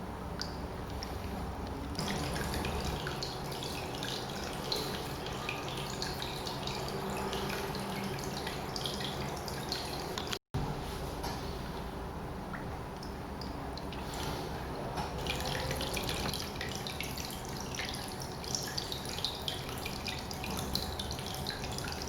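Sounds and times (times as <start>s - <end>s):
water trickling over rocks: 0.4s - 10.4s, 15.1s - 22.0s.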